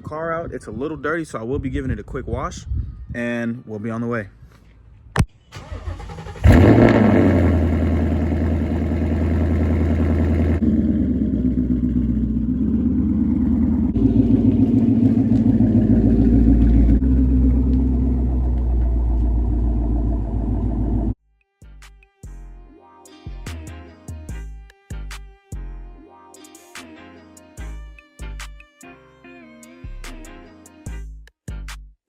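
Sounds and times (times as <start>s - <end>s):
car engine idling: 5.6s - 21.2s
car engine revving: 5.6s - 21.2s.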